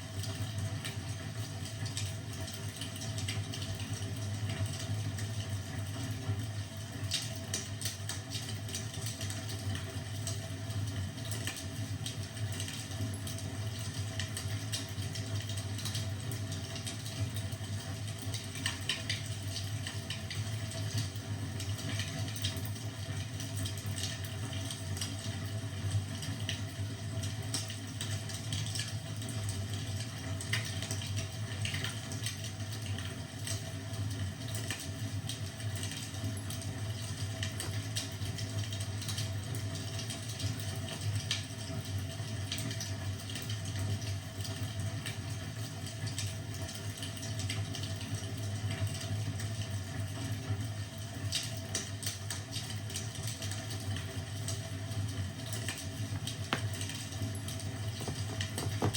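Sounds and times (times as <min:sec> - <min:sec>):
wood fire crackling: 0:53.9 - 0:58.9.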